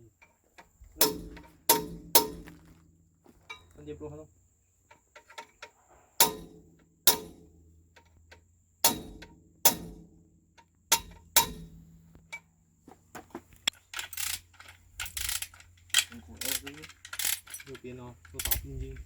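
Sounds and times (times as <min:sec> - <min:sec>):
hammer striking metal: 0:01.0 - 0:02.6, 0:06.2 - 0:07.5, 0:08.8 - 0:10.1, 0:10.9 - 0:11.8
metal clattering on metal: 0:01.0 - 0:02.7, 0:05.1 - 0:07.4, 0:13.8 - 0:19.0.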